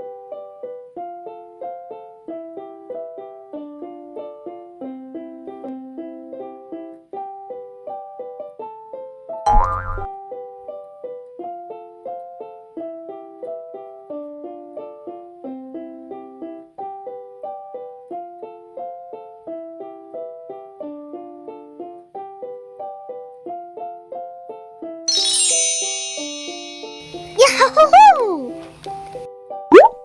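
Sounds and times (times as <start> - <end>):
light keyboard tune: 25.1 - 30.0.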